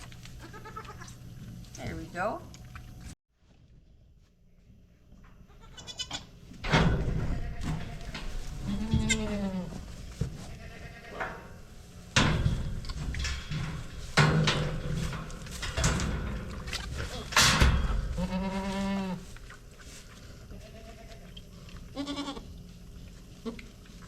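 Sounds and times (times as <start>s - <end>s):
goats bleating: 0.4s - 1.1s, 7.2s - 9.8s, 10.4s - 11.3s, 18.1s - 19.3s, 20.5s - 22.5s.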